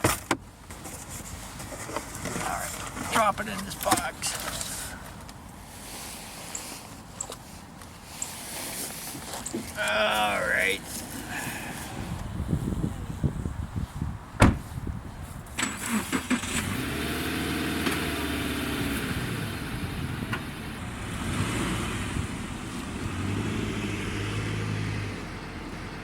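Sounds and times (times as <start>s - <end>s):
car door shutting: 14.4s - 14.8s.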